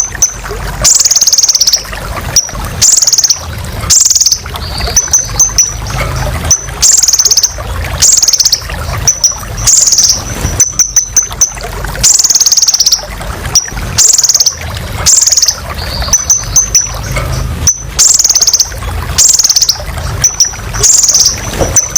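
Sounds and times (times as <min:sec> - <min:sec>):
bird singing high trills: 0:00.0 - 0:21.9
sharp bird chips: 0:02.8 - 0:13.0.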